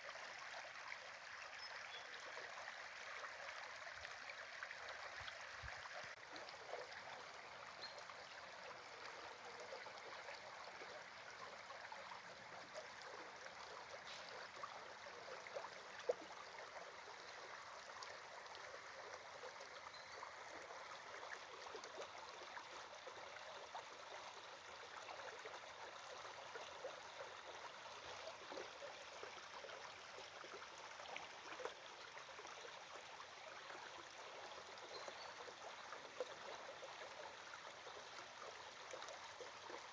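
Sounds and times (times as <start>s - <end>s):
faint stream running water: 0.0s - 39.9s.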